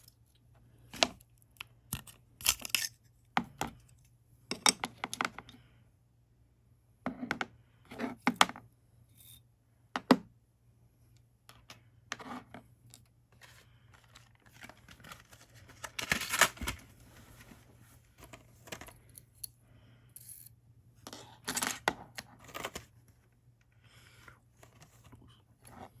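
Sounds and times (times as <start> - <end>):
pistol parts clicking and clinking: 1.9 - 3.0.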